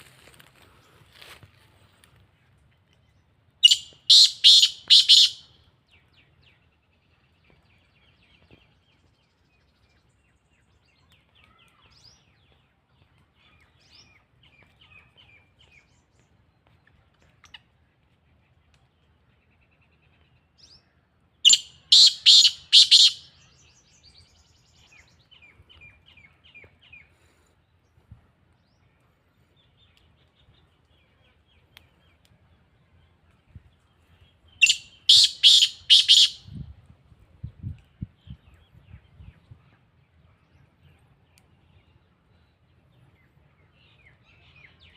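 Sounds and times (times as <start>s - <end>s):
francolin harsh call: 3.6s - 5.4s, 21.5s - 23.3s, 34.6s - 36.5s
faint high twittering: 34.6s - 36.5s.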